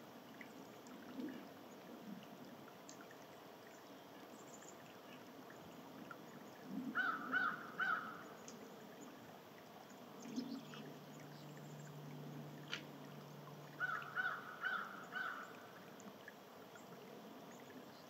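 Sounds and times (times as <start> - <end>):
low steady hum: 0.0 - 18.0
small birds chirping: 10.2 - 12.0.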